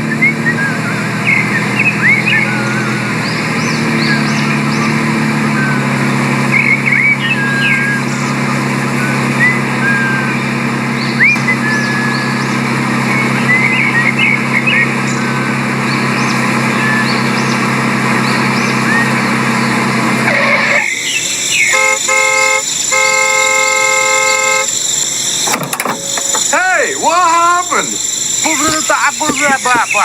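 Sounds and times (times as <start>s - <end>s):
high chirps: 0.0s - 23.4s, 24.0s - 30.0s
engine hum: 0.0s - 30.0s
vehicle horn: 20.2s - 26.9s.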